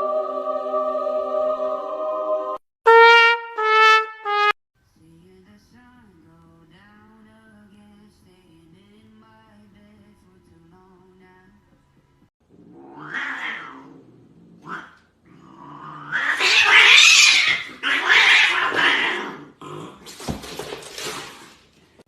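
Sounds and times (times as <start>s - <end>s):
cat yowling: 12.6s - 14.0s, 15.8s - 19.4s.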